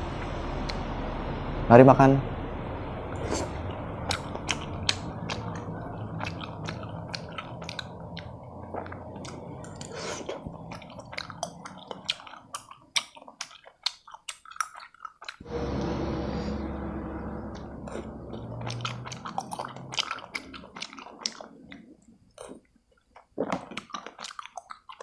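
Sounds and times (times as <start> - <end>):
wet chewing with clicks and smacks: 3.2 - 15.4, 17.9 - 25.0.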